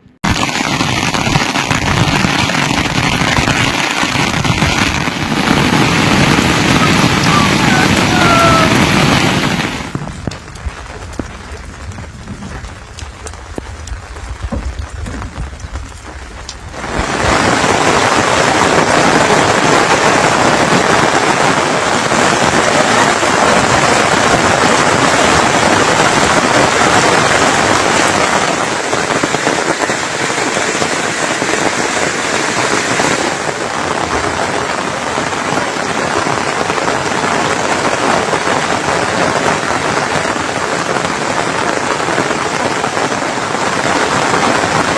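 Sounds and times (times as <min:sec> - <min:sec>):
rain downpour: 0:00.0 - 0:44.9
scattered drips: 0:00.3 - 0:17.0
low rumble: 0:05.3 - 0:17.1.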